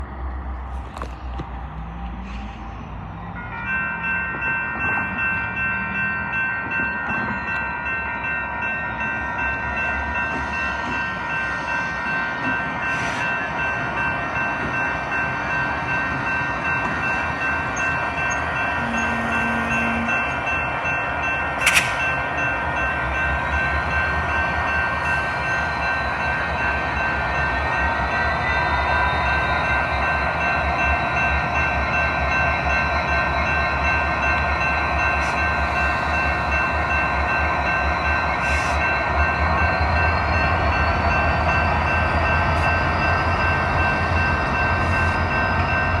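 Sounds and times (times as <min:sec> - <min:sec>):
sharp click: 0:21.6 - 0:22.1.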